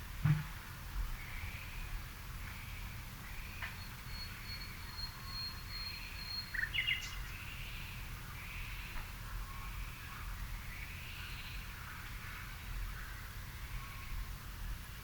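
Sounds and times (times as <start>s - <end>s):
bird chirps and calls: 4.1s - 7.9s.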